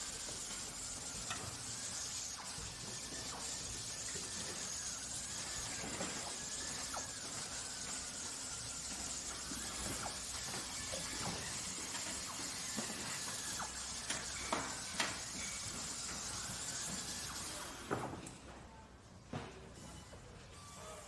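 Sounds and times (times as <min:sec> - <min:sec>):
machinery hiss: 0:00.0 - 0:18.1.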